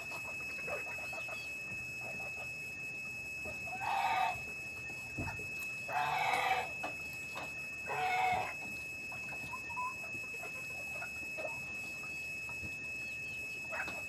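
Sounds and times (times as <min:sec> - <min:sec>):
chickens squawking: 0:00.0 - 0:01.5, 0:03.7 - 0:04.5, 0:05.9 - 0:07.0, 0:07.8 - 0:11.7.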